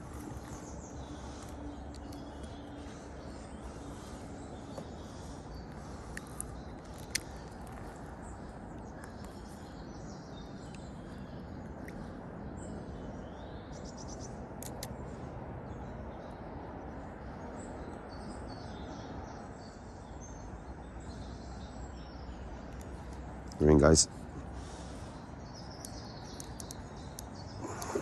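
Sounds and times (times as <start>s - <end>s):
birds chirping: 0.0s - 28.0s
steady background rumble: 0.0s - 28.0s
sharp clicks: 14.6s - 15.0s, 25.8s - 28.0s.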